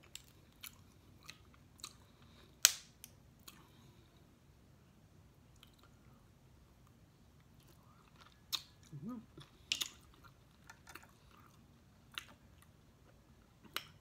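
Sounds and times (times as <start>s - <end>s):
person chewing: 0.0s - 2.6s, 3.4s - 3.9s, 7.4s - 14.0s
person humming: 8.9s - 9.3s.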